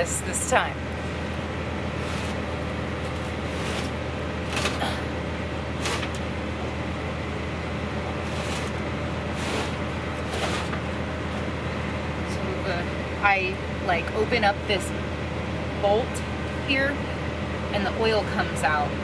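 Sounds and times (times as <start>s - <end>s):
truck engine idling: 0.0s - 19.0s
handling noises: 1.2s - 5.0s, 5.7s - 6.3s, 8.2s - 11.5s.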